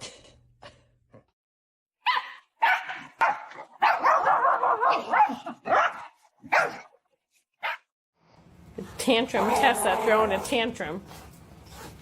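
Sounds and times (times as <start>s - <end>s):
dog barking: 2.0s - 6.9s, 7.6s - 7.9s.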